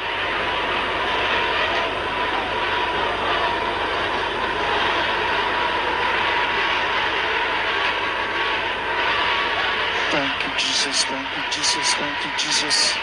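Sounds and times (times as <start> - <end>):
congregation praying aloud: 10.0 - 13.0.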